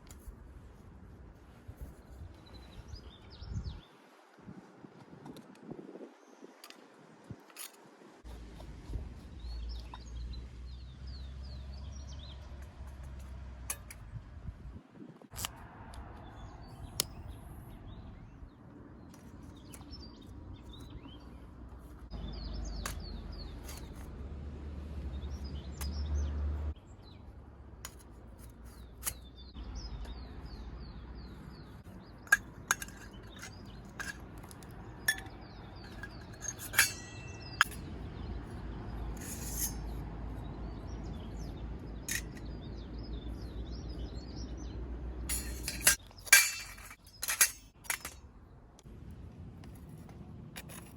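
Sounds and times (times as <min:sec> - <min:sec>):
small birds chirping: 0:00.0 - 0:04.2, 0:05.9 - 0:14.2, 0:15.3 - 0:24.2, 0:24.8 - 0:48.9
dishes and utensils clinking: 0:35.0 - 0:37.8.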